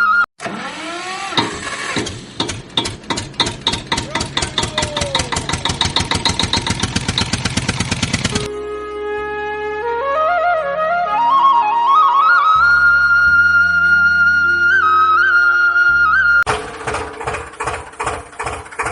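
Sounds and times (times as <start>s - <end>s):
tractor engine chugging: 0.4s - 8.5s, 16.5s - 18.9s.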